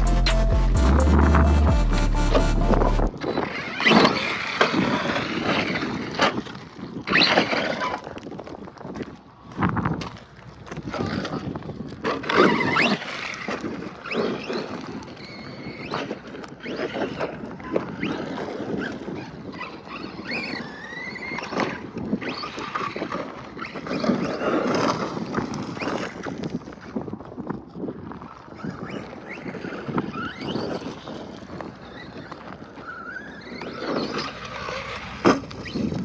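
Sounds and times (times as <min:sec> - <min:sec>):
wind buffeting microphone: 0:25.0 - 0:36.0.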